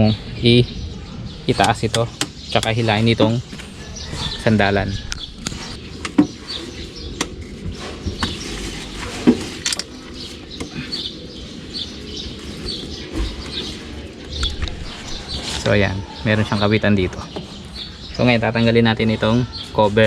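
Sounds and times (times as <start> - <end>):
birds chirping faintly: 0.0 - 20.0
clicks and knocks of van parts: 5.4 - 11.0.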